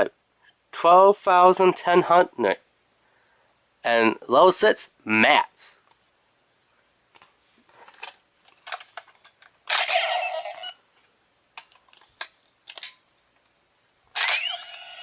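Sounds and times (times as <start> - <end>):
electronic toy sound effect: 9.7 - 10.8, 14.2 - 15.0.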